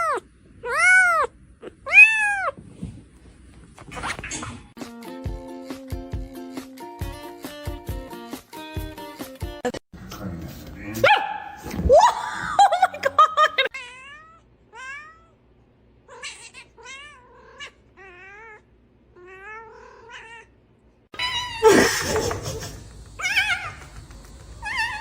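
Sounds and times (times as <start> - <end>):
cat meowing: 0.0 - 2.6, 24.6 - 25.0
cat yowling: 1.9 - 2.6, 21.2 - 22.4, 23.2 - 24.0, 24.6 - 25.0.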